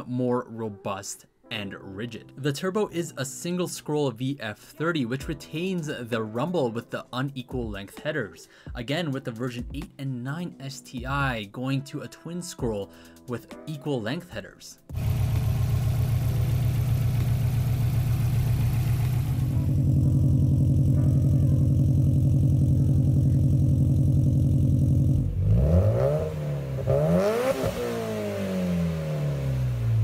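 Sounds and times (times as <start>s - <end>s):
car engine idling with pulsing rumble: 14.9s - 30.0s
car engine revving: 14.9s - 30.0s.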